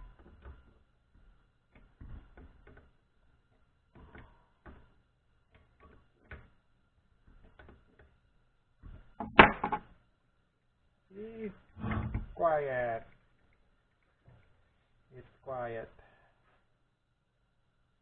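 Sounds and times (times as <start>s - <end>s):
faint clicks and knocks of parts: 0.0s - 11.0s, 13.0s - 15.2s.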